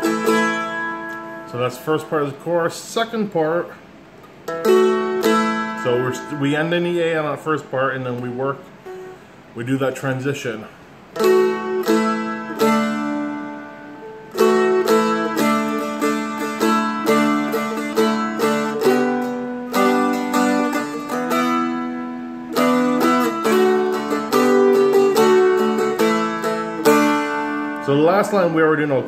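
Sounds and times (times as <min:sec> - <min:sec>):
dulcimer flatpicked melody: 0:00.0 - 0:01.7, 0:04.4 - 0:07.0, 0:11.2 - 0:29.0.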